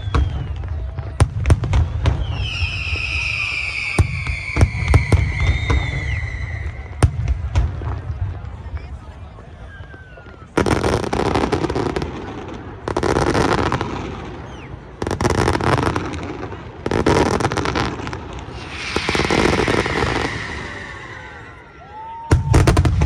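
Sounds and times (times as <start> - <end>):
fireworks hissing and whistling: 0.0 - 1.0, 1.7 - 7.5, 16.9 - 23.0
fireworks crackling: 0.0 - 8.9, 10.0 - 23.0.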